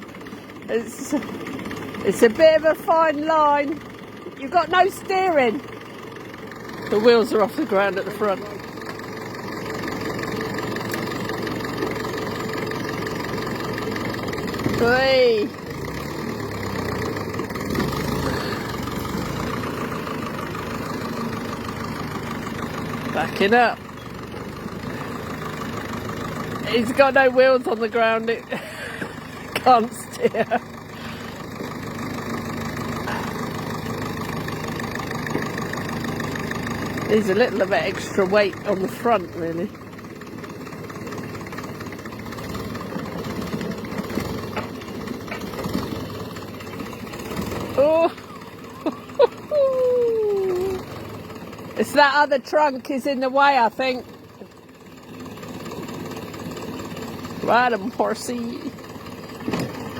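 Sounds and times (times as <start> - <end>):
tractor engine under load: 0.0 - 59.9.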